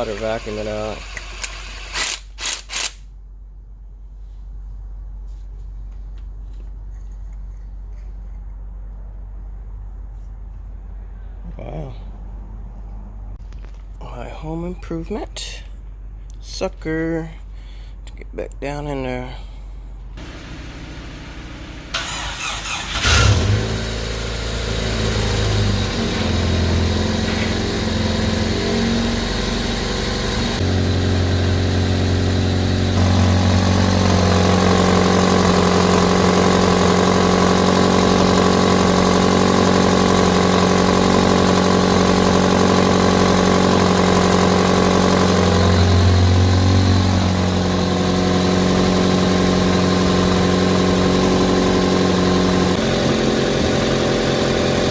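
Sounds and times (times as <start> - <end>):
shop vacuum running: 0.0 - 2.2, 23.0 - 54.9.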